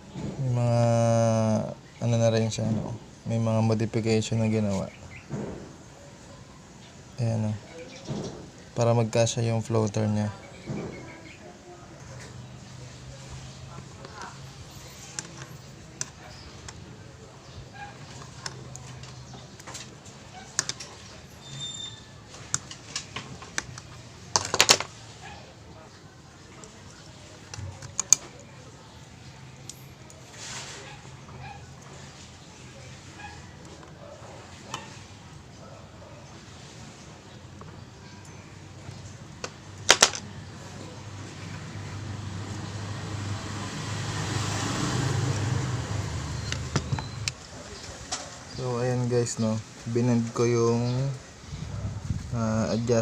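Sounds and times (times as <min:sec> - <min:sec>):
vehicle engine hum: 0:39.2 - 0:47.7.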